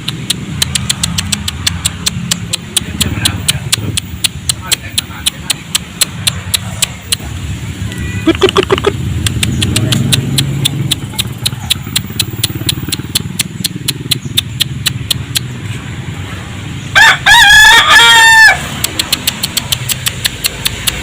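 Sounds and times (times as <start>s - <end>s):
fast steady ticking: 0.0s - 15.6s, 18.7s - 21.0s
rooster crowing: 16.9s - 18.7s.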